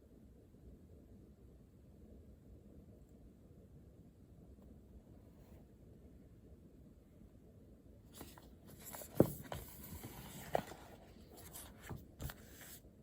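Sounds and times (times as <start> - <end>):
handling knocks and rustles: 8.2 - 12.8.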